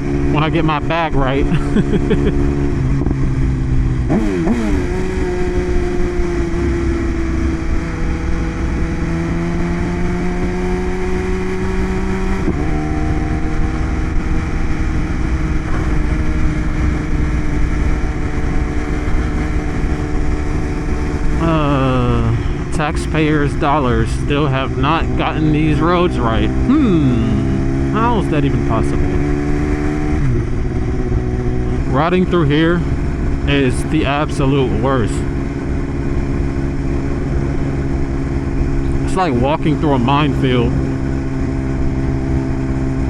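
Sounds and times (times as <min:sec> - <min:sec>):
motorcycle engine revving: 0:00.0 - 0:43.0
wind noise: 0:01.4 - 0:25.0.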